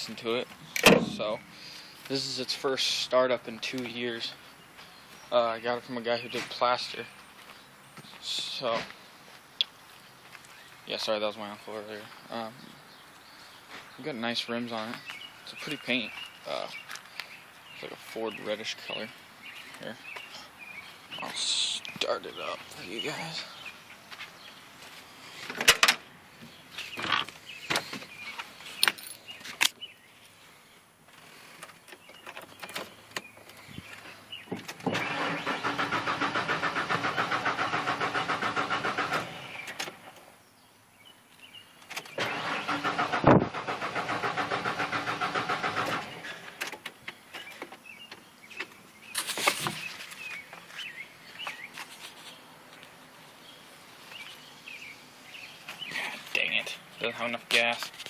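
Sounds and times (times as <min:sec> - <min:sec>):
truck engine cranking: 0:34.7 - 0:40.0, 0:42.0 - 0:46.8.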